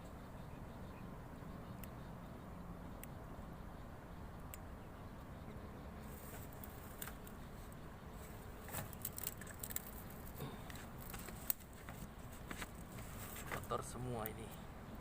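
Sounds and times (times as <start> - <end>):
rustling handling noise: 8.2 - 13.8.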